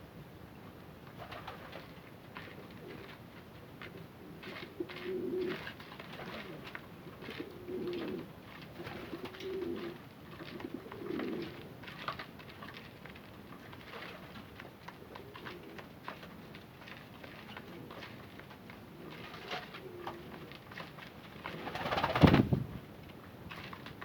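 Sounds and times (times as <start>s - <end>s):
pigeons cooing: 4.2s - 11.6s, 15.0s - 15.8s, 19.0s - 20.5s.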